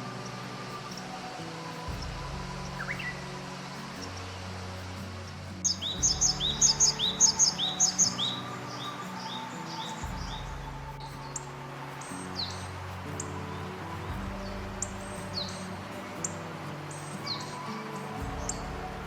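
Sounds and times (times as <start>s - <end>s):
slow sustained music chords: 0.0s - 19.0s
bird singing high notes: 2.6s - 4.2s, 5.6s - 13.7s.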